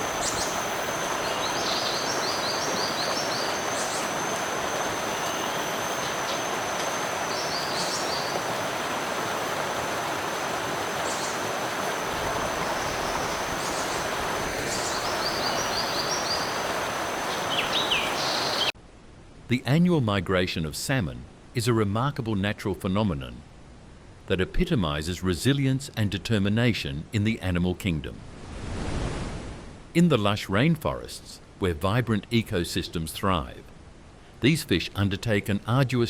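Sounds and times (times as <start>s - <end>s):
stream water rushing: 0.0s - 18.8s.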